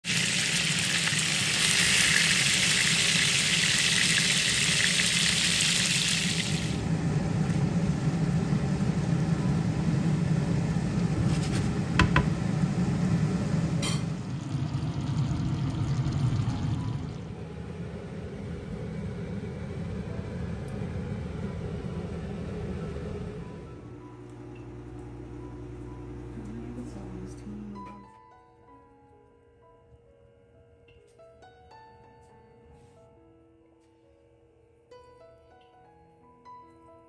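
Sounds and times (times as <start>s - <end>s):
food sizzling in hot oil: 0.0s - 6.8s, 11.1s - 17.2s
low steady hum: 6.2s - 28.1s.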